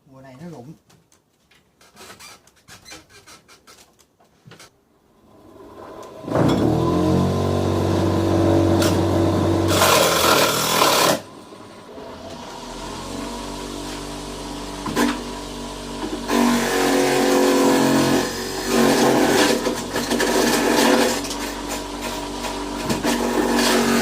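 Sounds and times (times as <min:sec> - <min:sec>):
harsh grinding noise: 0:06.1 - 0:11.3, 0:14.8 - 0:24.0.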